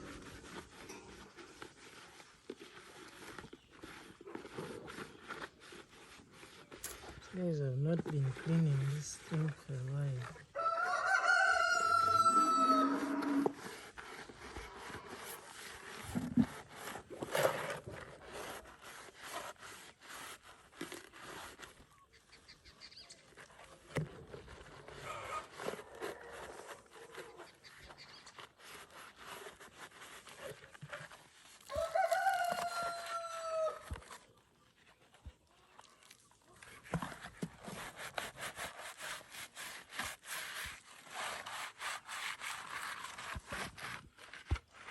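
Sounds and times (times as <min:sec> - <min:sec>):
rooster crowing: 0:10.6 - 0:13.6, 0:31.7 - 0:33.8
plastic drinker knocks and scrapes: 0:14.3 - 0:18.4.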